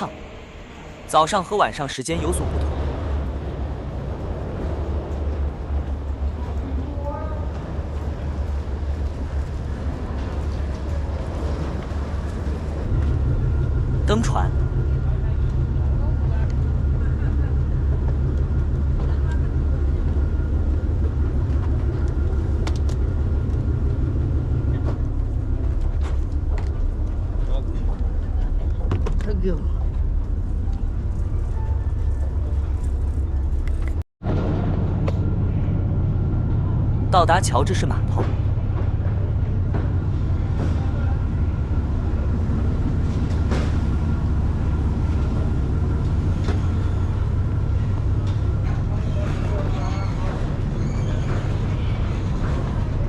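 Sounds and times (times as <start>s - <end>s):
ferry engine rumble: 0.0s - 53.0s
faint voices: 48.1s - 53.0s.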